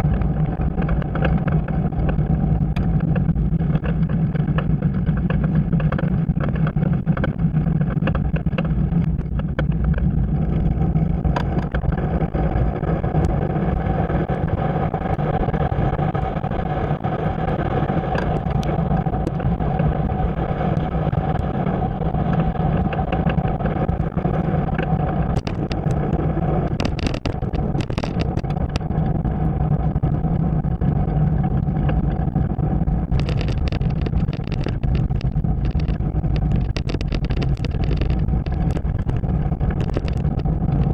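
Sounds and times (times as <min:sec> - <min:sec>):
clicks and rattles: 0:00.0 - 0:10.2, 0:11.2 - 0:12.0, 0:18.1 - 0:19.5, 0:22.8 - 0:29.1, 0:33.0 - 0:40.9
bike ride rumble: 0:00.0 - 0:40.9
road noise: 0:00.0 - 0:40.9
wind: 0:00.0 - 0:40.9.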